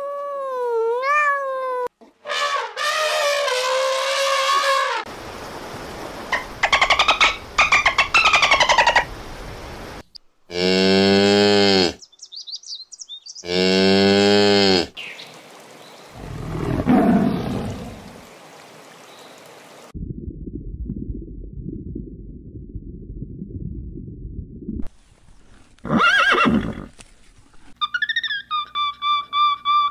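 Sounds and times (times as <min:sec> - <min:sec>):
dolphin whistles: 0:27.8 - 0:29.9.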